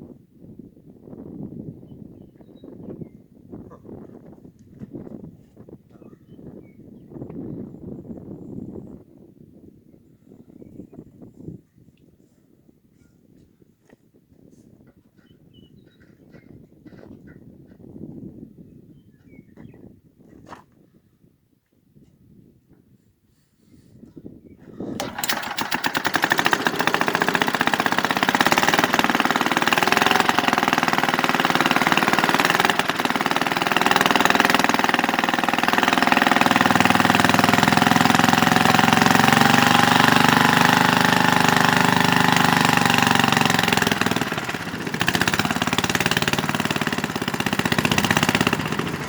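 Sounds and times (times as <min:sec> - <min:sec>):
small engine running: 0:25.0 - 0:49.0.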